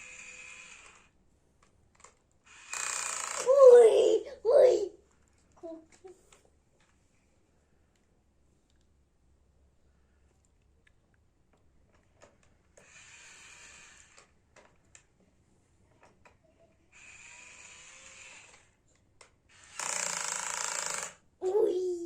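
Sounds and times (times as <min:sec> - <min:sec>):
small drill running: 0:00.0 - 0:01.2, 0:02.5 - 0:03.8, 0:12.8 - 0:14.3, 0:16.9 - 0:18.8, 0:19.5 - 0:21.2
small clicks: 0:00.8 - 0:02.3.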